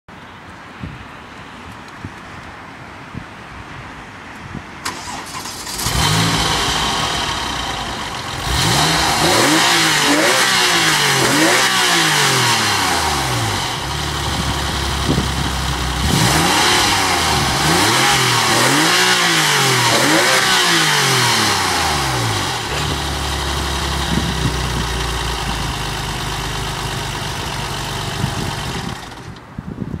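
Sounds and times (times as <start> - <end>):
car engine starting and idling: 4.8 - 29.6
engine revving in throttle blips: 4.9 - 25.8.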